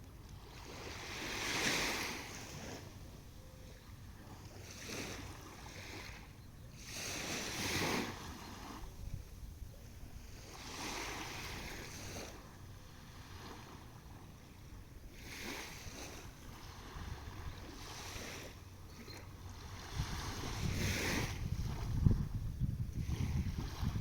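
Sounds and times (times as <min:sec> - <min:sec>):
waves washing onto shore: 0:00.5 - 0:03.0, 0:15.1 - 0:21.9
wind buffeting microphone: 0:19.7 - 0:24.0.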